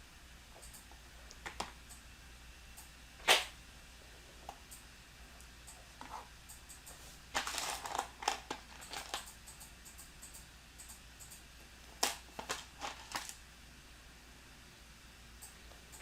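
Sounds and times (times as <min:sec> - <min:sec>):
plastic pieces clicking and rattling: 0:07.4 - 0:09.4, 0:12.0 - 0:13.4.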